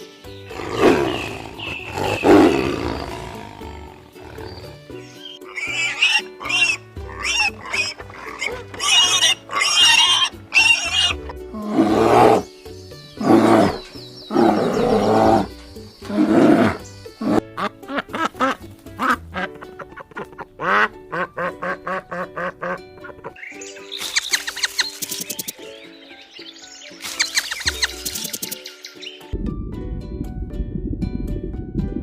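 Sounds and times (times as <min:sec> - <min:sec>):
background music: 0:00.0 - 0:32.0
animal calls: 0:00.5 - 0:12.5, 0:13.2 - 0:17.4.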